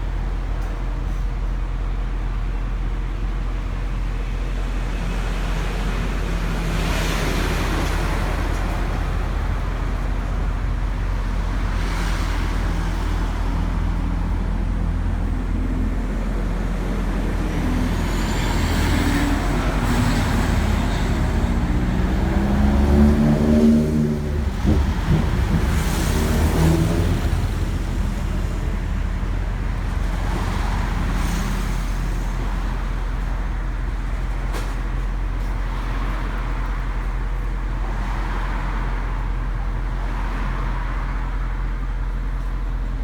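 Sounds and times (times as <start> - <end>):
road traffic: 0.0 - 43.0
vehicle accelerating past: 15.4 - 32.4.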